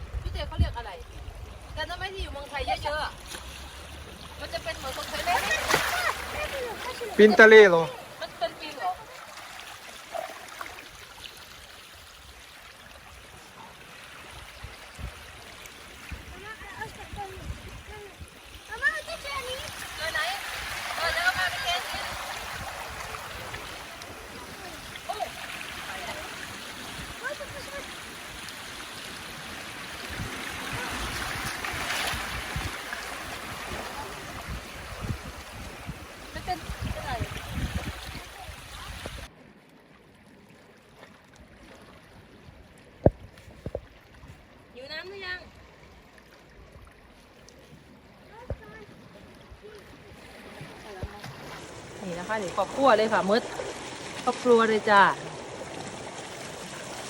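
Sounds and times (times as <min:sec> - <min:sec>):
rumbling wind gusts: 0:00.0 - 0:03.2, 0:16.0 - 0:39.3
seawater washing over rocks: 0:00.0 - 0:39.4, 0:47.2 - 0:57.0.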